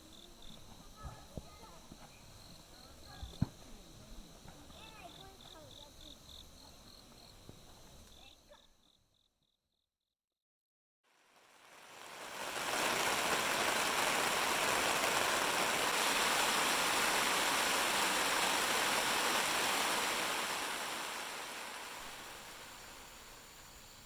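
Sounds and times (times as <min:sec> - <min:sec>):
steady rain falling: 0:00.0 - 0:05.9, 0:11.2 - 0:24.0.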